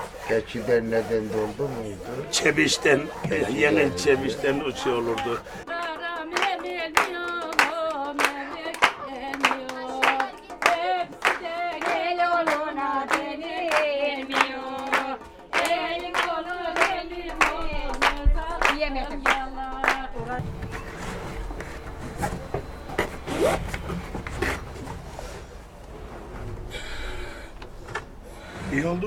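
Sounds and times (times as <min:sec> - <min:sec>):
rhythmic hand clapping: 0:00.0 - 0:20.4
voices singing in unison: 0:02.2 - 0:20.8.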